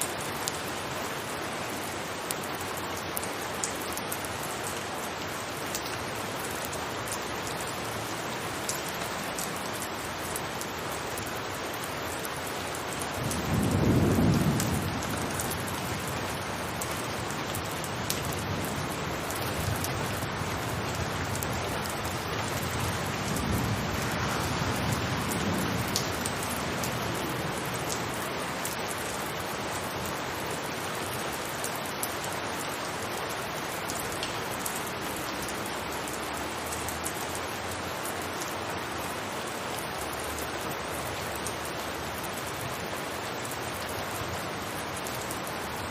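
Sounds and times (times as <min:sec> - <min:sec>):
rain falling on a rooftop: 0:00.0 - 0:45.9
deep thunder rumble: 0:13.2 - 0:16.8.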